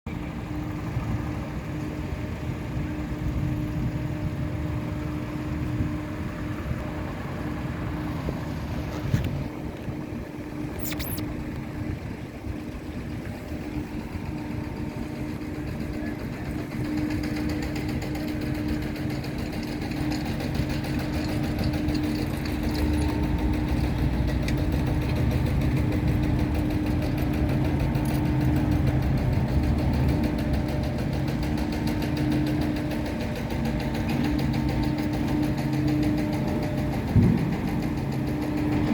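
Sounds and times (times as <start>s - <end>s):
engine droning hum: 0.1s - 38.9s.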